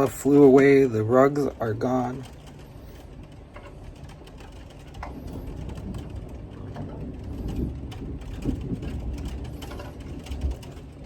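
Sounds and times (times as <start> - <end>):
low rumbling rush of wind: 0.0 - 11.0.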